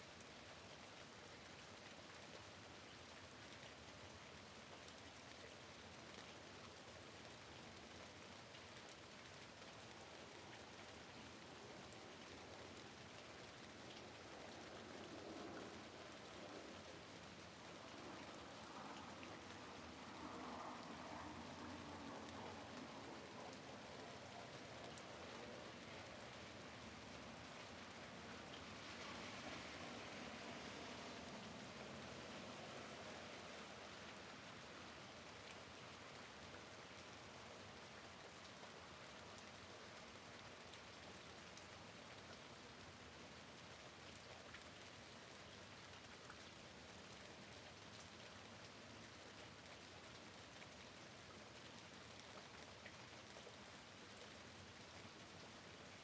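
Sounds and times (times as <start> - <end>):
light raindrop ticks: 1.5 - 32.1, 33.9 - 53.6.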